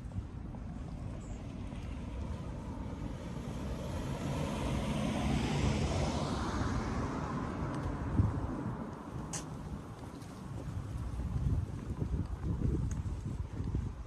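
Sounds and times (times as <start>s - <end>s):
vehicle passing by: 2.6s - 9.0s.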